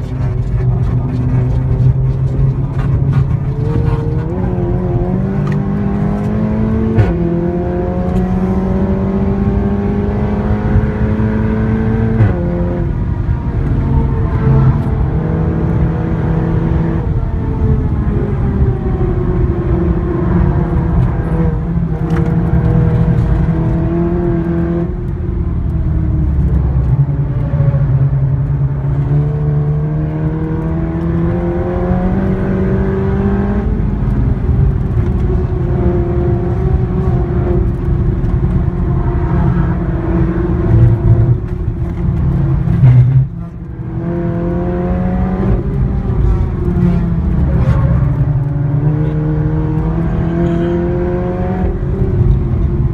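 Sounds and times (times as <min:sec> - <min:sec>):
car engine and loud exhaust: 0:00.0 - 0:52.9.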